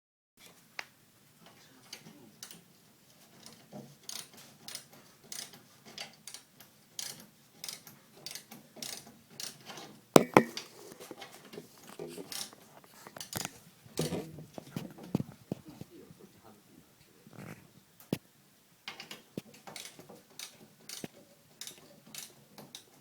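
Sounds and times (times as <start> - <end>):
loud knock: 10.2 - 10.6.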